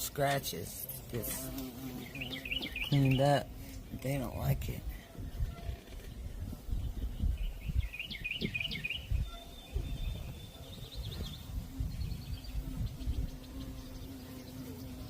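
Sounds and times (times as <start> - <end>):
songbirds chirping: 0.0 - 15.0
bird trill: 2.0 - 3.4, 7.4 - 15.0.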